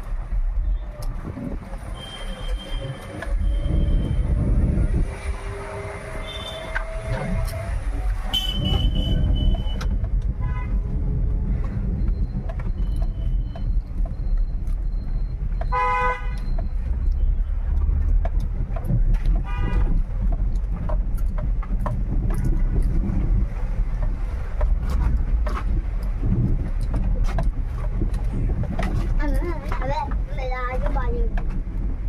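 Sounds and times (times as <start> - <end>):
car driving rumble: 0.0 - 32.0
vehicle horns honking: 6.2 - 6.8, 8.3 - 9.8, 15.7 - 16.4, 19.4 - 19.9.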